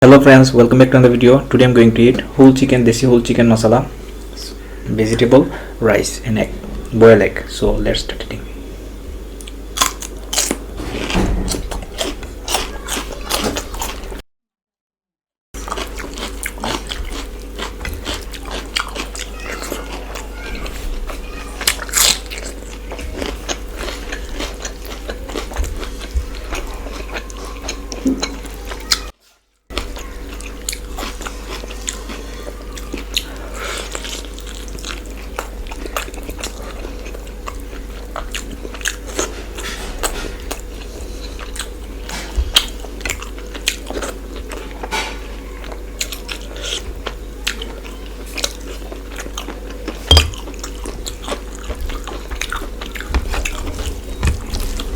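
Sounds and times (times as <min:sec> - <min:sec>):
person chewing food: 0:09.3 - 0:10.7, 0:11.7 - 0:14.2, 0:15.6 - 0:44.9, 0:45.6 - 0:54.9.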